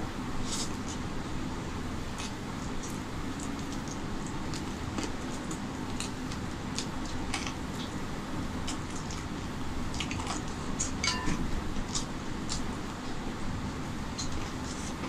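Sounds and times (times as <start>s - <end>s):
steady low hum: 0.0s - 15.0s
wet chewing and lip-smacking: 2.1s - 8.0s, 8.6s - 11.0s, 11.8s - 13.2s.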